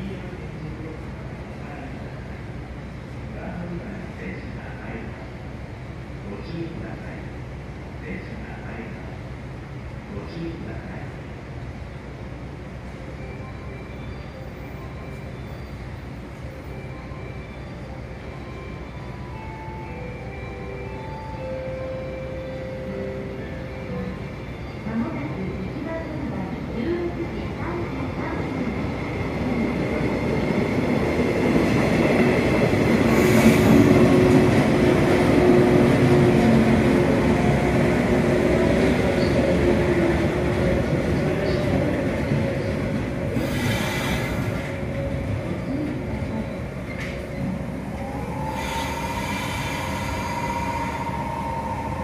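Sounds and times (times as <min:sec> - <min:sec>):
train wheels rumbling on rail: 0:25.2 - 0:52.0.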